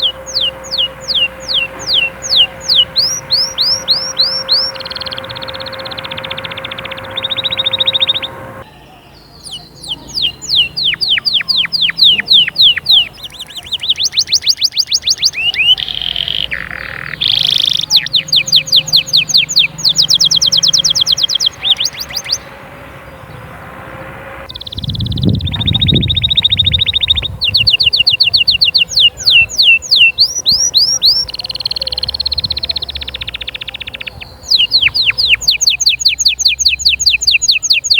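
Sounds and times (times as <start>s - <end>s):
low rumble: 0.0s - 8.7s, 16.5s - 29.5s
canary singing: 0.0s - 37.9s.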